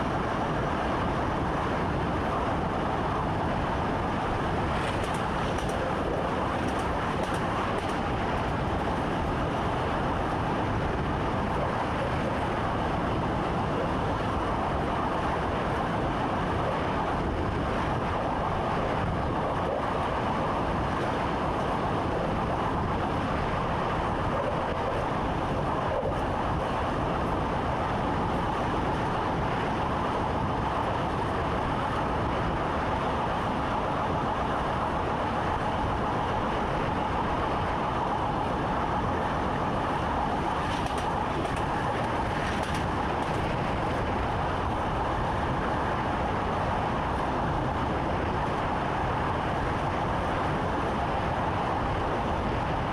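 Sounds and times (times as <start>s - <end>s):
train running noise in cab: 0.0s - 52.9s.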